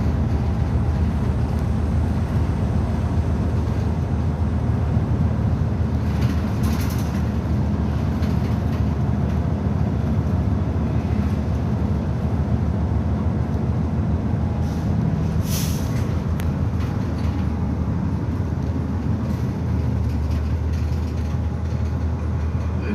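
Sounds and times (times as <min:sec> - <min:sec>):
bus engine and road drone: 0:00.0 - 0:22.9
brief hiss: 0:14.6 - 0:16.0.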